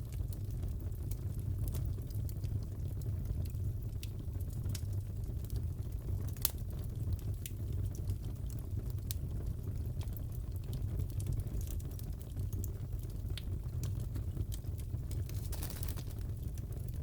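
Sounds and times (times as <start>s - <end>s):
fire crackling: 0.0s - 17.0s
sharp pops of fire: 15.1s - 16.8s.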